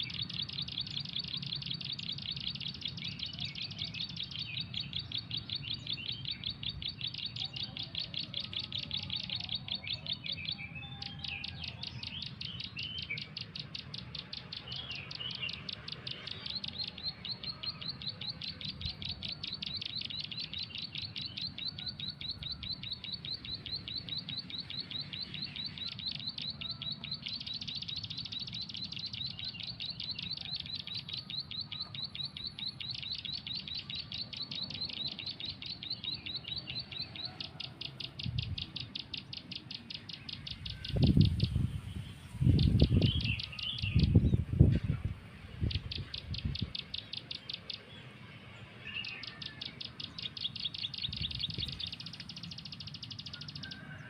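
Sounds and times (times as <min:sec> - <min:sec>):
varied bird calls: 0:00.0 - 0:54.0
bird call through phone speaker: 0:02.2 - 0:41.8.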